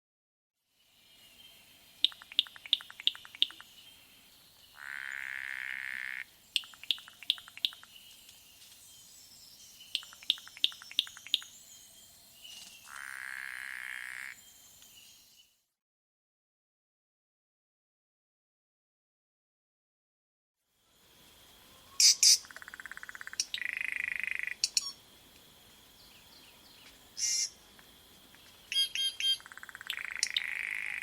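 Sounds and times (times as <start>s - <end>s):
bird chipping: 2.0s - 3.8s, 4.8s - 7.9s, 9.9s - 11.6s, 22.0s - 25.0s, 26.8s - 27.6s, 28.7s - 31.0s.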